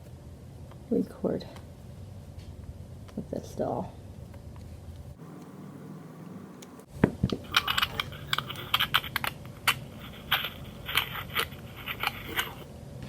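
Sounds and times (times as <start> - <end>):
plastic toy clicks and clatter: 7.4 - 12.6.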